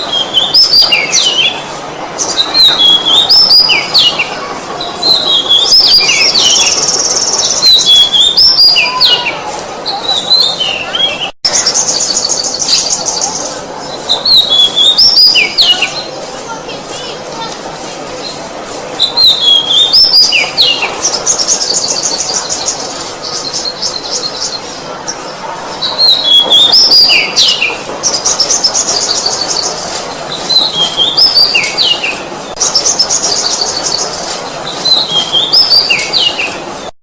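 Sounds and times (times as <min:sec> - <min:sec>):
bird singing whistles and trill: 0:02.3 - 0:04.2, 0:05.0 - 0:09.4, 0:14.1 - 0:16.0, 0:19.0 - 0:22.8, 0:34.8 - 0:36.5.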